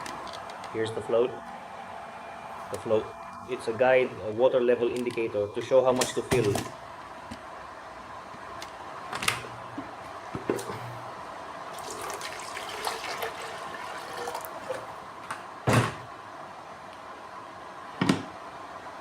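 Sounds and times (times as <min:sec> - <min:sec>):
water trickling into container: 0:11.7 - 0:14.9.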